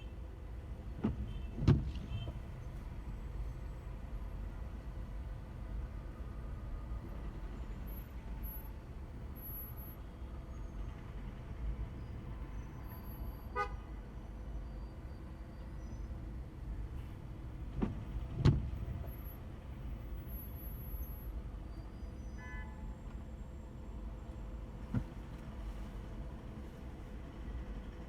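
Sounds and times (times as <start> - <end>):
car horn toots: 13.6 - 13.8.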